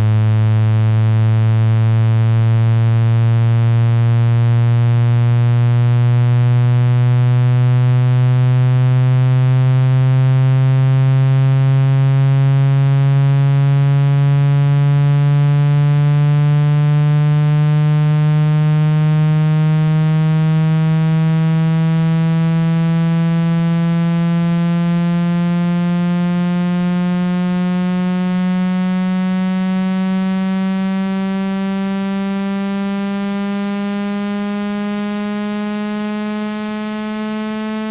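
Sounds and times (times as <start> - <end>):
buzzy rising test tone: 17.2 - 37.9.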